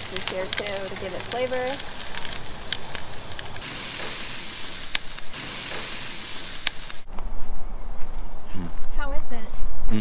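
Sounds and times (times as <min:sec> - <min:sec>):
food sizzling in a frying pan: 0:00.0 - 0:07.1.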